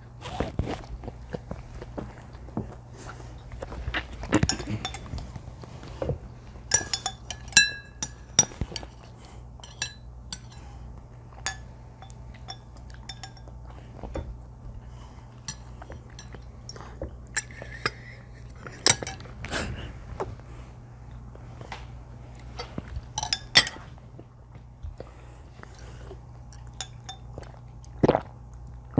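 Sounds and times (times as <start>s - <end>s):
tableware clinking: 6.7s - 8.9s, 9.6s - 10.6s, 11.4s - 13.5s, 18.7s - 19.3s, 23.2s - 23.9s.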